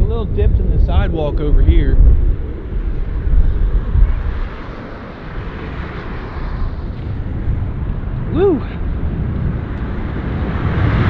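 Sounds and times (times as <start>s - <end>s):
wind buffeting microphone: 0.0s - 11.0s
road traffic hiss: 2.4s - 11.0s.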